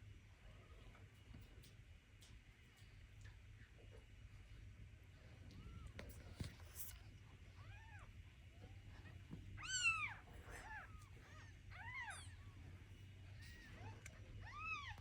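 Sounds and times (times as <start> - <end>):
kittens mewing: 7.5 - 15.0.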